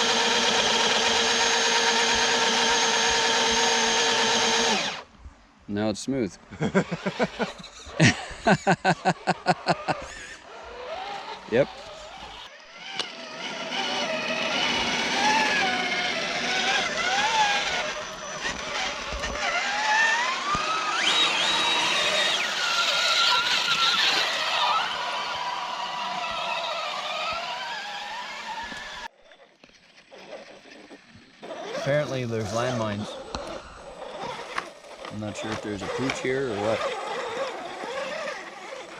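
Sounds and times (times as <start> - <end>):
electric motors whining: 0.0 - 5.1, 6.5 - 38.9.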